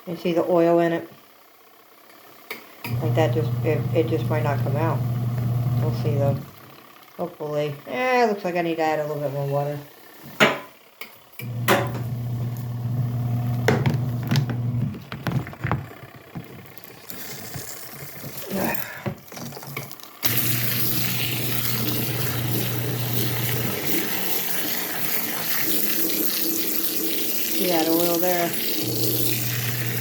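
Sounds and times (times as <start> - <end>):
washing machine motor humming: 2.9 - 6.8, 11.4 - 17.2, 20.2 - 30.0
water rushing into tub: 20.2 - 30.0.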